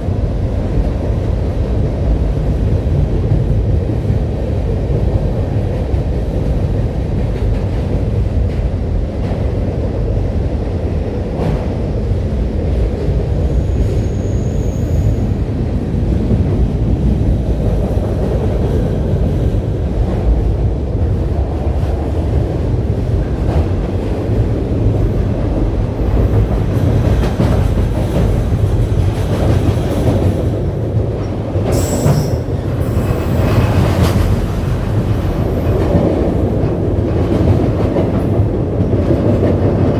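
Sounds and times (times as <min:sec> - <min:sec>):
train rumbling on track: 0:00.0 - 0:39.9
train wheel squeal: 0:13.4 - 0:15.4, 0:31.7 - 0:34.2.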